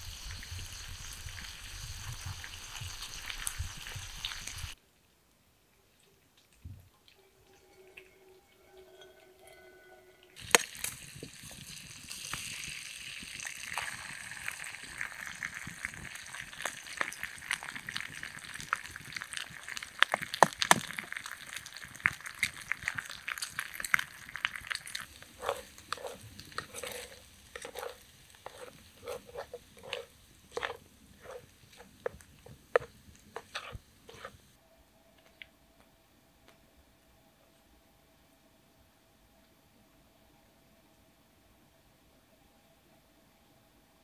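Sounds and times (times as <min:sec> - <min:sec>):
campfire crackling: 0:00.0 - 0:04.8, 0:10.4 - 0:34.6
food sizzling in a pan: 0:00.0 - 0:04.8, 0:10.4 - 0:34.5
plastic spatula scraping pan: 0:25.2 - 0:34.4.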